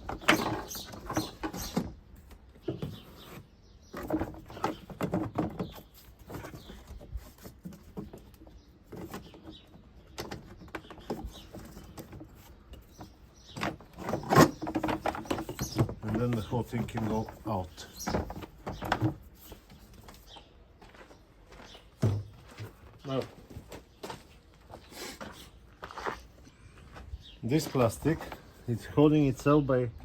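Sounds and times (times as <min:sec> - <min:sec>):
plastic scraping and rattling: 0:00.0 - 0:20.4.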